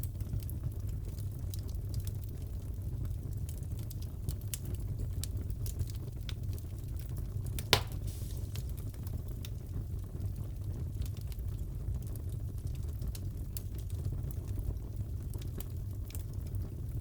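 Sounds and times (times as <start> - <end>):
wood fire crackling: 0.0 - 17.0
fire popping: 3.9 - 11.0.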